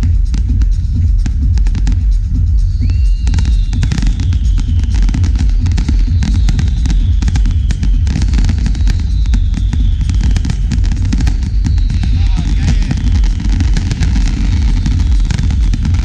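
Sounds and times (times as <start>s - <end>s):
deep steady rumble: 0.0s - 16.0s
faint falling whistle: 2.7s - 13.1s
fireworks crackling bangs: 3.3s - 16.0s.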